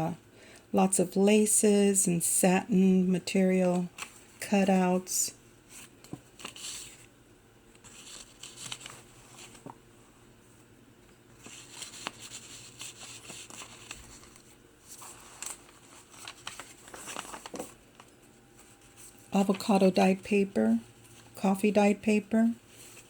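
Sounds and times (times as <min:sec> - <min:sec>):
paper pages rustling and crinkling: 0:03.5 - 0:04.7, 0:05.7 - 0:07.1, 0:07.7 - 0:09.8, 0:11.3 - 0:19.8, 0:22.6 - 0:23.0.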